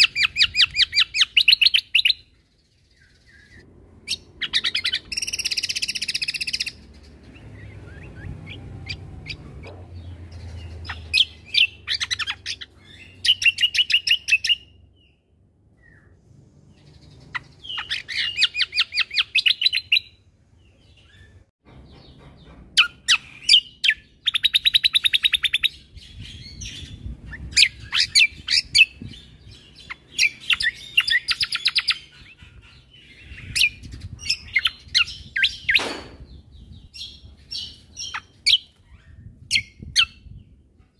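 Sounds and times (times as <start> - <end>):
songbird trilling: 0.0 - 14.8, 16.8 - 20.1, 22.8 - 40.4.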